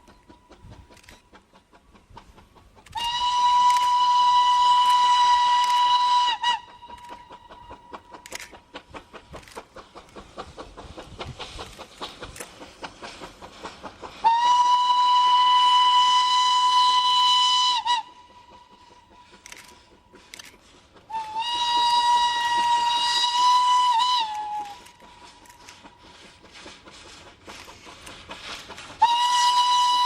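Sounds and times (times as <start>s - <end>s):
steam locomotive running: 0.0s - 30.0s
steam locomotive whistle: 2.9s - 8.6s, 14.2s - 19.7s, 21.1s - 25.8s, 28.9s - 30.0s.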